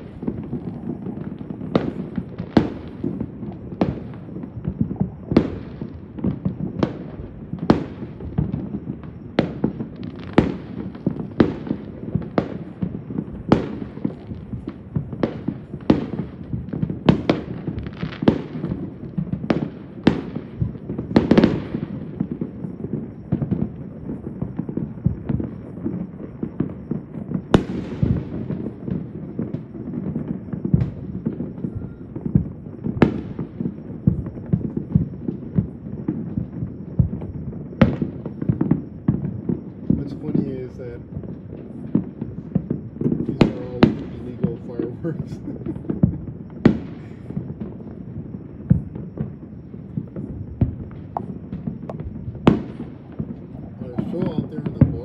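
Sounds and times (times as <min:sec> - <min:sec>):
firework bangs: 0:00.0 - 0:55.0
rumble and crackle of explosions: 0:00.0 - 0:55.0.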